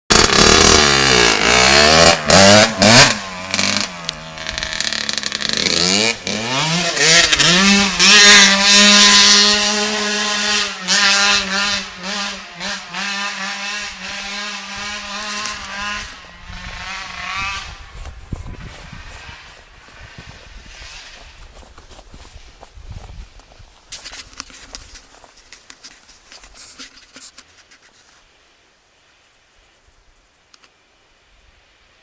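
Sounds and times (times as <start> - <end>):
motocross bike engine revving: 0.1 - 22.3.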